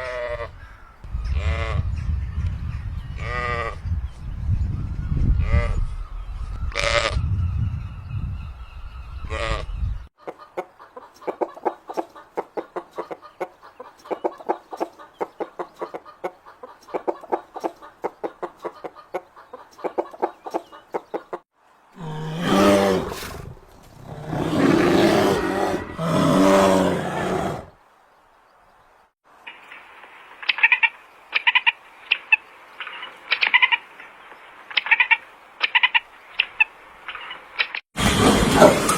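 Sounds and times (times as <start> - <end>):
drawn-out chicken calls: 9.2 - 21.4
chickens clucking: 10.2 - 21.4.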